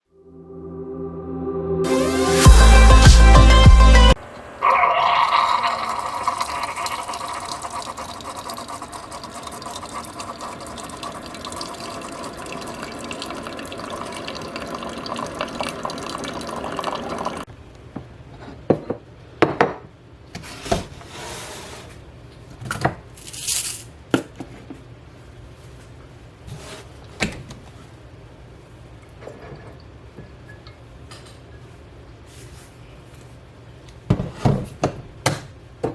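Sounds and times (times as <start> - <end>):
liquid pouring into container: 4.6 - 17.5.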